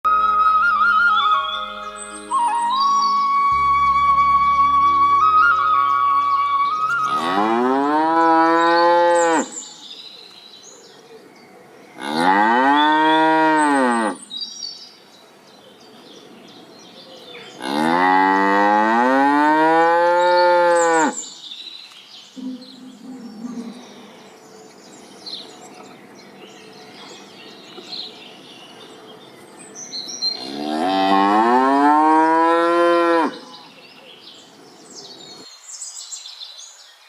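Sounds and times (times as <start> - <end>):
cow mooing: 7.1 - 9.5, 12.0 - 14.2, 17.6 - 21.2, 30.4 - 33.5.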